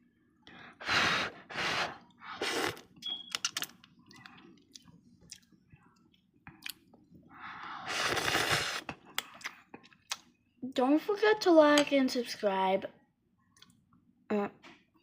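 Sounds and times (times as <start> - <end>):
person chewing noodles: 1.2 - 10.3.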